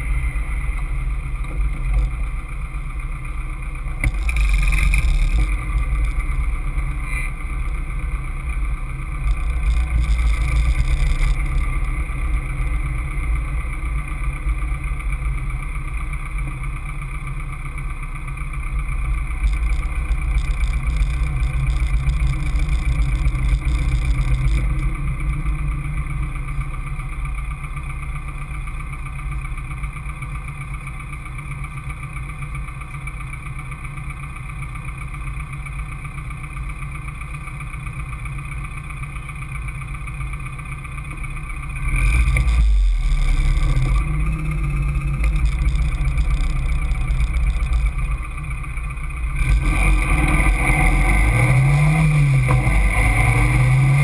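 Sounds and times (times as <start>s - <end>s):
racing car engine accelerating: 41.8s - 48.4s, 49.2s - 54.0s.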